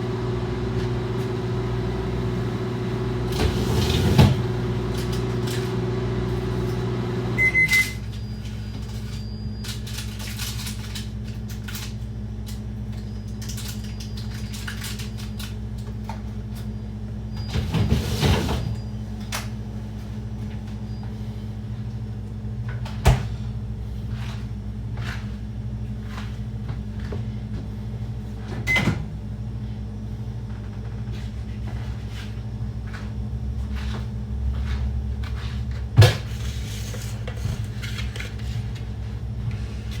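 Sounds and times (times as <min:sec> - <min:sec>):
microwave oven humming: 0:00.0 - 0:40.0
short high keypad beep: 0:07.4 - 0:08.0.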